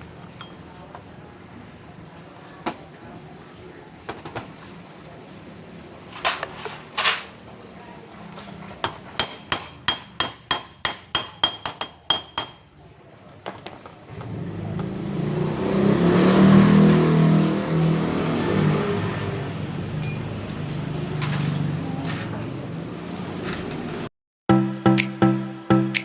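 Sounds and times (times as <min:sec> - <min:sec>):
scooter engine starting and running: 0:14.1 - 0:24.1.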